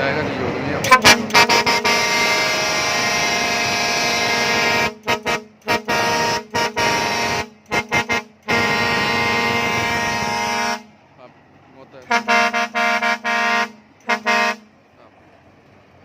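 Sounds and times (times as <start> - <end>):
air horn blasts and toots: 0.8 - 10.9, 12.0 - 14.8.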